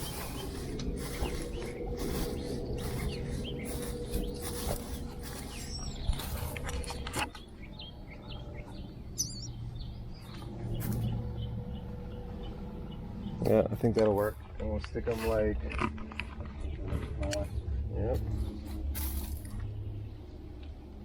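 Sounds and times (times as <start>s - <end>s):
dry nesting material rustling: 0.0s - 8.0s
starlings chirping: 0.0s - 20.5s.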